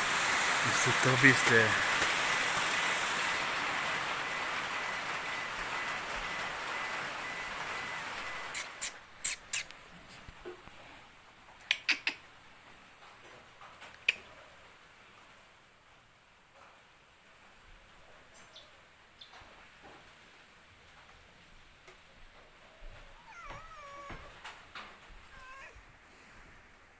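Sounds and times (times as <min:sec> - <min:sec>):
rain hissing: 0:00.0 - 0:09.2, 0:23.1 - 0:26.9.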